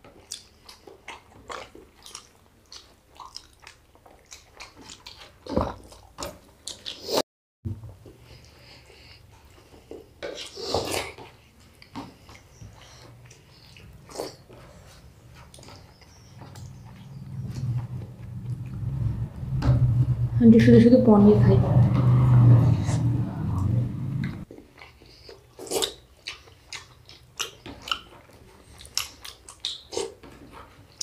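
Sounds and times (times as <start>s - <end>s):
chewing and mouth smacks: 0.0s - 7.2s, 8.3s - 18.9s, 24.2s - 31.0s.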